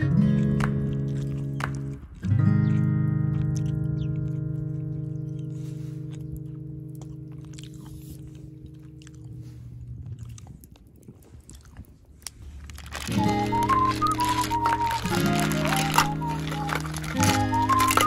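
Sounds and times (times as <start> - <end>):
chewing and crunching: 0.0 - 18.0
background music: 12.9 - 18.0.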